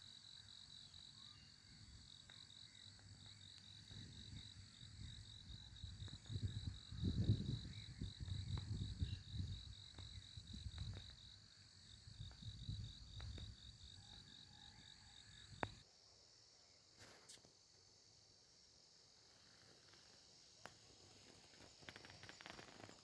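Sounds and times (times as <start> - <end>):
cricket chirping: 0.0 - 23.0
wind rumbling on microphone: 3.9 - 11.2, 12.1 - 13.6.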